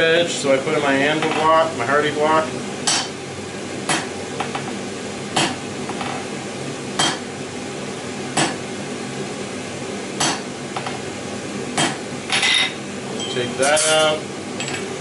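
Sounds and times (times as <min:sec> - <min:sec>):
hammer striking steel on anvil: 0:02.9 - 0:03.2, 0:03.9 - 0:04.1, 0:05.4 - 0:05.6, 0:07.0 - 0:07.2, 0:10.2 - 0:10.4.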